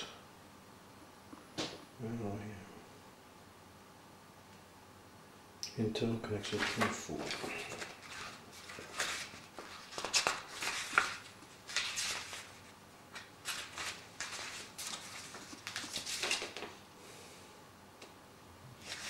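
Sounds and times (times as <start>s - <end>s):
paper pages rustling: 6.4s - 16.8s, 18.8s - 19.0s.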